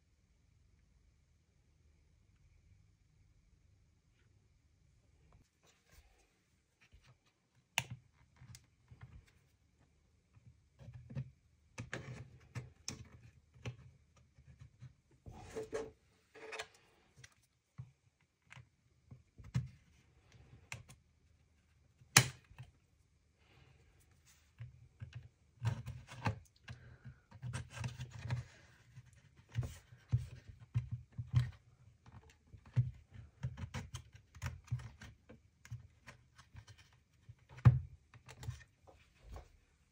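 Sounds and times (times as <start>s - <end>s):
sharp plastic snaps: 22.1s - 22.7s.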